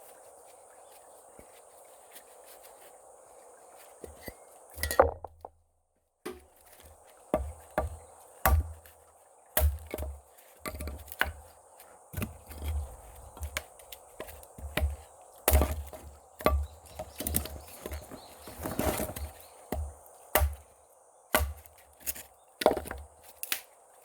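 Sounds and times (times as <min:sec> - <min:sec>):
wood being chopped: 0:04.8 - 0:05.5, 0:06.2 - 0:11.5, 0:12.1 - 0:23.7.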